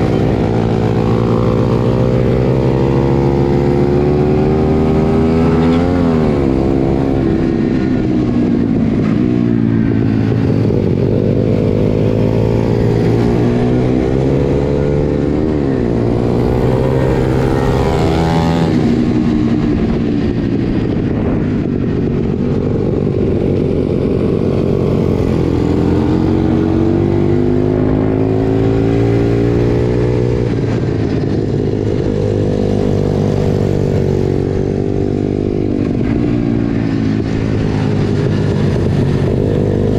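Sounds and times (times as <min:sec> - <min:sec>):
pit bike engine revving: 0:10.8 - 0:19.2.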